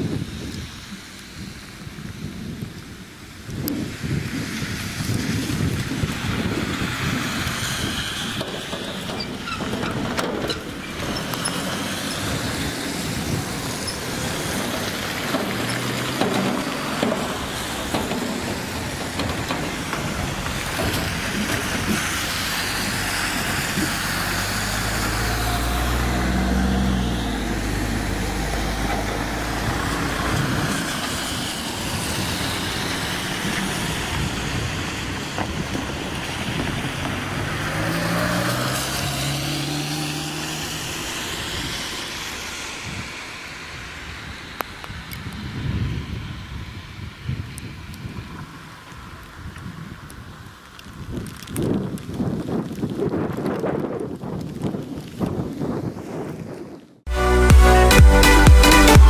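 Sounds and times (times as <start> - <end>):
wheels rumbling on track: 0.0 - 59.0
diesel train passing: 6.1 - 47.2.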